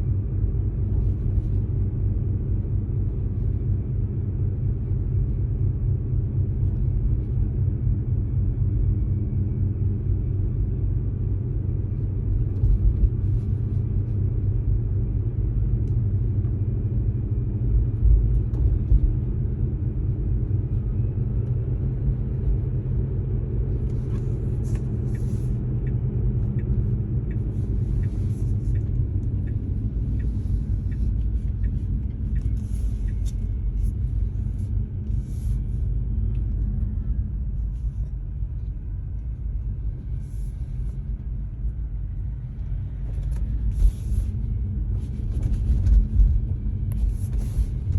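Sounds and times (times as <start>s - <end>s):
road rumble inside car: 0.0s - 47.9s
faint regular ticking: 25.8s - 33.3s.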